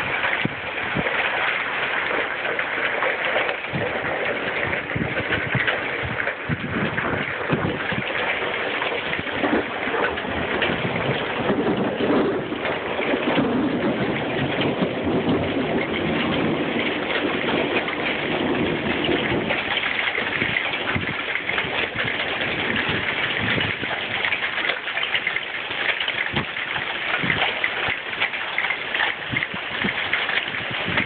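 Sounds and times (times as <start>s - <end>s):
heavy rain and hail hitting: 0.0s - 31.0s.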